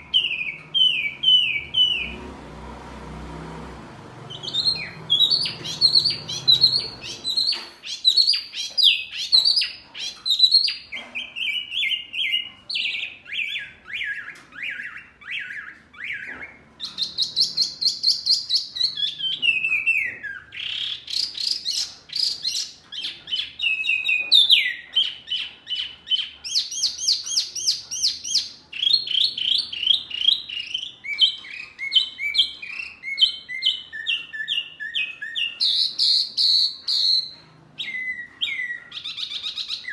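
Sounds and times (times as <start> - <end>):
songbird chirping song: 0.0 - 39.9.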